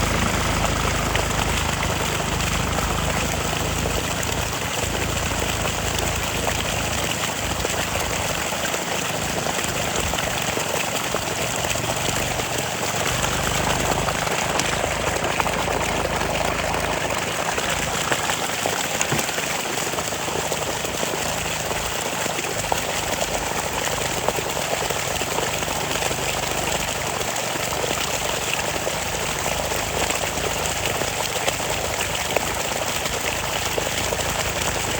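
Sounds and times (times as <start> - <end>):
churning splashing water and mud: 0.0 - 34.9
tractor diesel engine running: 0.0 - 34.9.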